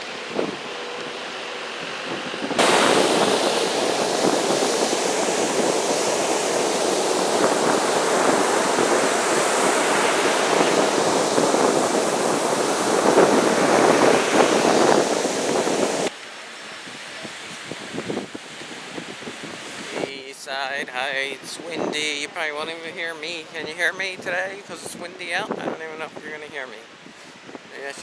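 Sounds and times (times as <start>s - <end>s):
wind buffeting microphone: 0.0s - 16.1s, 16.8s - 20.2s, 20.8s - 28.0s
rough ocean surf: 0.0s - 28.0s.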